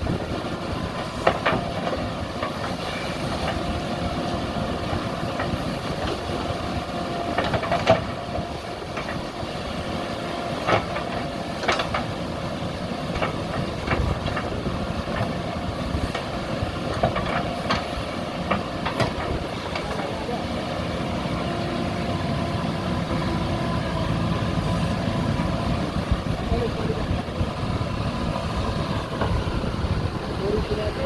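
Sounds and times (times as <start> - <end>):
diesel engine running: 0.0 - 31.0
machine clanks and knocks: 1.0 - 2.8, 7.2 - 9.4, 10.6 - 12.2, 13.1 - 20.1.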